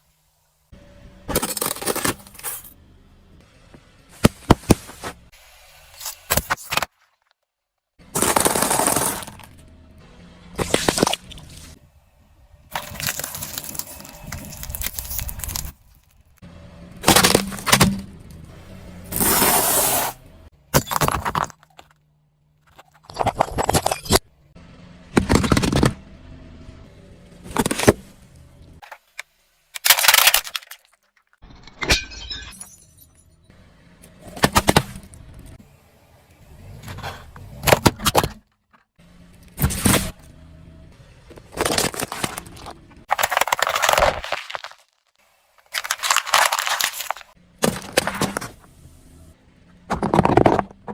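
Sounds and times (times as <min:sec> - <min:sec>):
tyre crushing objects: 0:08.2 - 0:09.5, 0:17.0 - 0:18.1, 0:34.3 - 0:35.1, 0:41.3 - 0:45.0, 0:45.6 - 0:48.6, 0:49.9 - 0:50.9.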